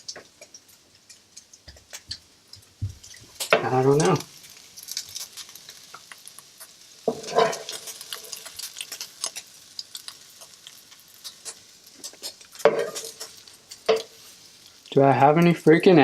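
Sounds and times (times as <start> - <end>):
small clicks and taps: 0.0 - 4.1
kitchen items clattering: 7.1 - 8.4.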